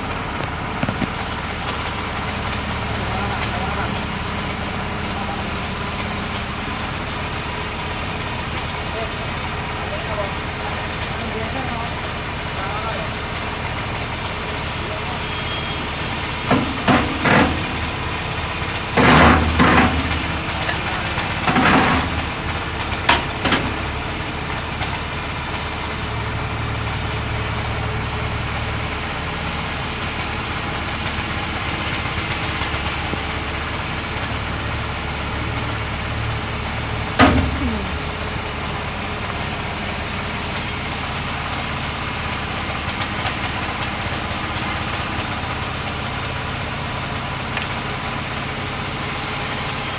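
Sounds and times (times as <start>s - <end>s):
engine idling: 0.0s - 49.9s
loud knocks: 16.4s - 24.1s, 37.2s - 38.0s.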